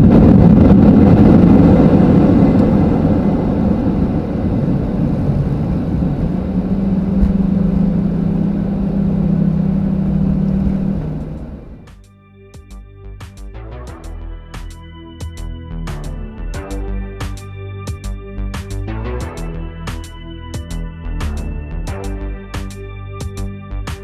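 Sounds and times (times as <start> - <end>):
jet engine cabin drone: 0.0 - 12.1, 13.3 - 24.0
music: 11.8 - 24.0.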